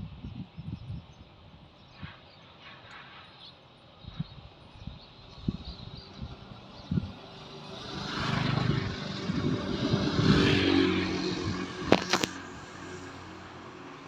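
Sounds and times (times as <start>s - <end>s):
vehicle engine passing: 6.1s - 14.0s.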